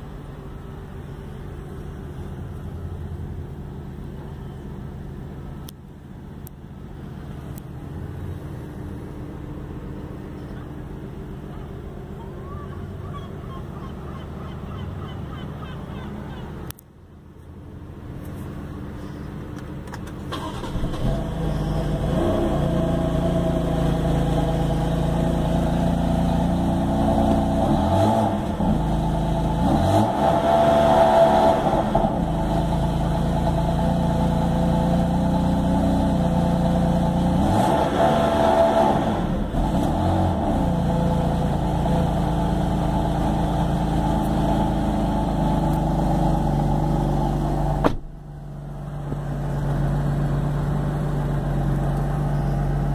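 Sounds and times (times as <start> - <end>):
car engine starting and idling: 0.0 - 52.9
car engine revving: 20.1 - 52.9.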